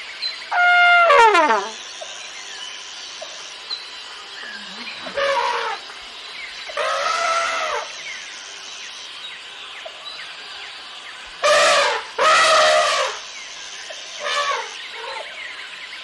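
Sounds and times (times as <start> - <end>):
birds chirping: 0.0 - 7.1
cartoon elephant trumpet: 0.5 - 1.8, 5.2 - 5.8, 11.4 - 13.2, 14.2 - 14.8.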